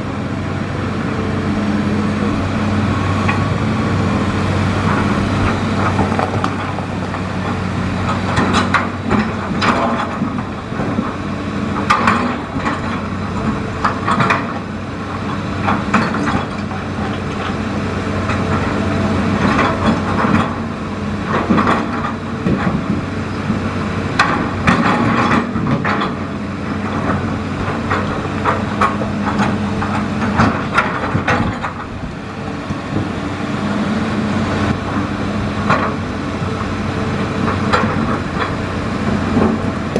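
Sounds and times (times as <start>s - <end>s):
excavator diesel engine running: 0.0s - 39.9s
knocks and clatters: 5.8s - 11.1s, 24.2s - 26.2s, 26.8s - 32.0s.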